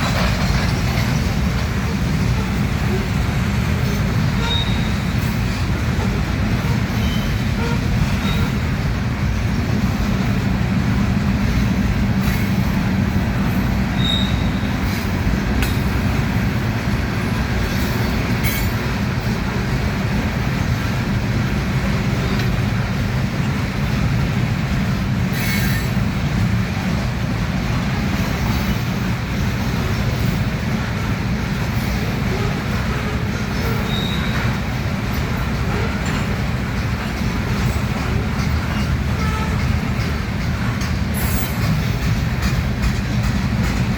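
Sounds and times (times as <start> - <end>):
train wheels rumbling on rail: 0.0 - 43.9
high-pitched wheel squeals: 3.8 - 5.0, 14.0 - 15.0, 33.6 - 34.4.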